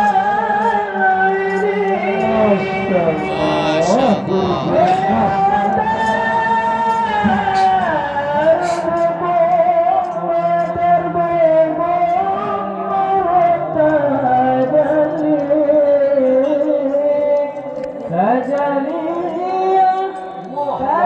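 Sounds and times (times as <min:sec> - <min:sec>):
person singing melismatically: 0:00.0 - 0:12.4.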